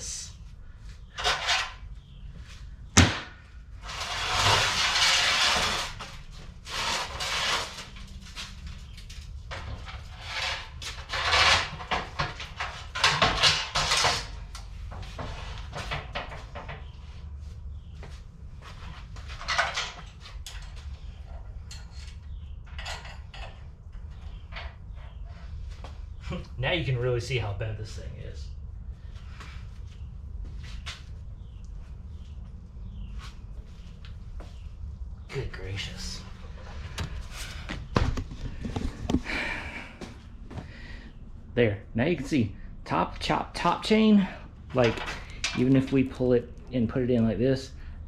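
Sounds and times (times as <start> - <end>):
metal scraping: 1.1 - 2.1, 3.8 - 14.4
metal frame knocks and clatter: 9.5 - 16.9, 19.2 - 25.2.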